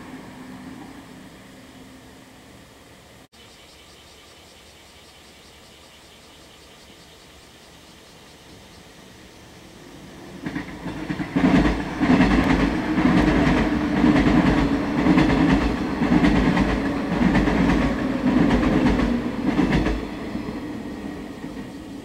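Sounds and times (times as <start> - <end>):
train low rumble: 0.0 - 3.3, 8.9 - 22.0.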